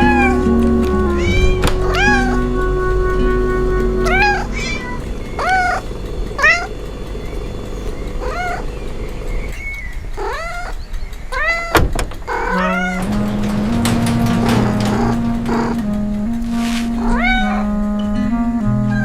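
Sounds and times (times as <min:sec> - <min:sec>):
cat meowing: 0:00.0 - 0:02.5, 0:04.0 - 0:06.7, 0:08.2 - 0:08.7, 0:10.2 - 0:13.1, 0:16.6 - 0:17.7.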